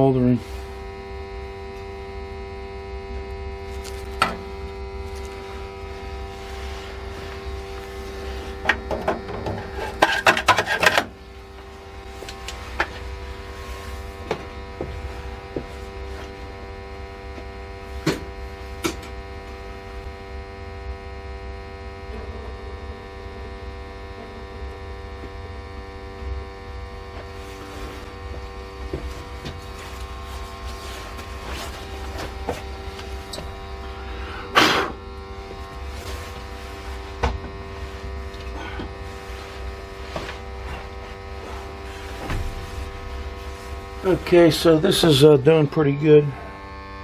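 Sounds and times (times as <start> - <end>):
machine hum with steady tones: 0.0 - 47.0.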